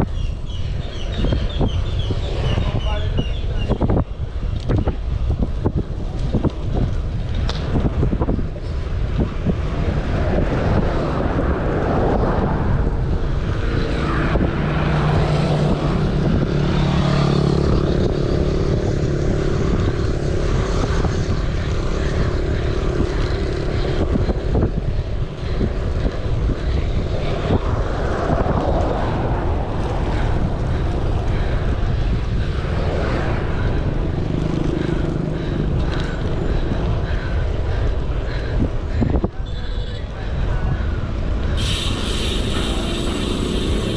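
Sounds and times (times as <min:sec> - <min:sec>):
wind buffeting microphone: 0:00.0 - 0:43.9
passing vehicle motor hum: 0:09.5 - 0:24.6, 0:41.2 - 0:43.9.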